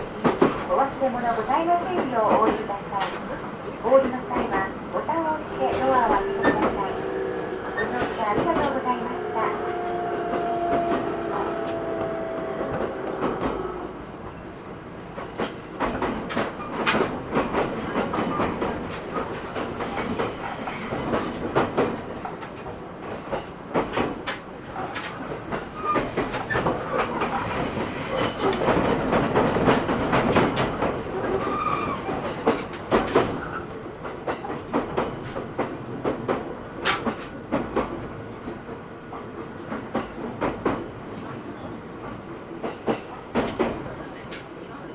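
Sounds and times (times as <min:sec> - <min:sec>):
train wheel and rail rumble: 0:00.0 - 0:44.9
train whine: 0:04.2 - 0:14.9.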